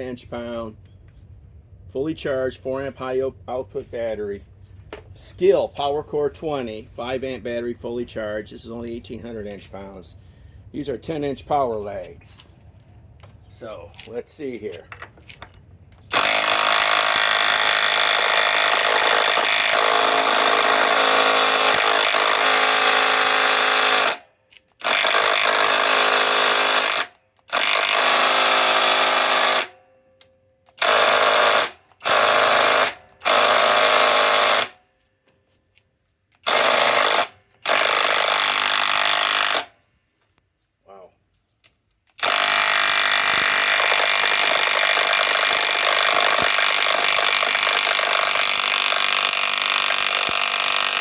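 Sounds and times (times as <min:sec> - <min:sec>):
impact driver driving screw into wood: 0:16.0 - 0:29.8, 0:30.7 - 0:34.8, 0:36.4 - 0:39.7, 0:42.1 - 0:51.0.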